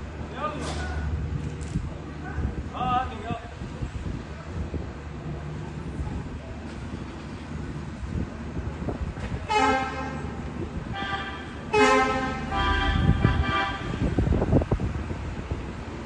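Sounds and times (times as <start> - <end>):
low traffic rumble: 0.0 - 16.0
car horns honking: 9.5 - 14.2.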